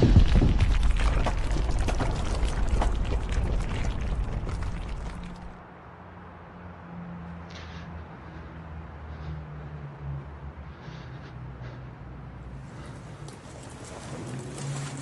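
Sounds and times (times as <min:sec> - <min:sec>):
crackling rush of noise: 0:00.0 - 0:05.7.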